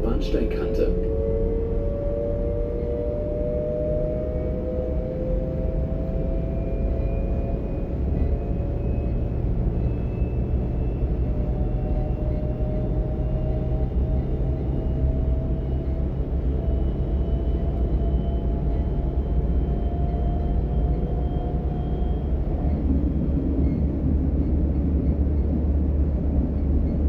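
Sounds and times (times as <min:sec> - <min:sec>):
train running gear rumble: 0:00.0 - 0:27.0.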